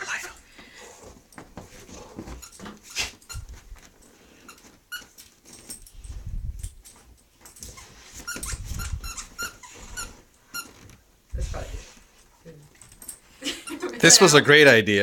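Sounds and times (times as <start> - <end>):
squeaky toy squeaks: 2.4 - 3.6, 7.7 - 10.8.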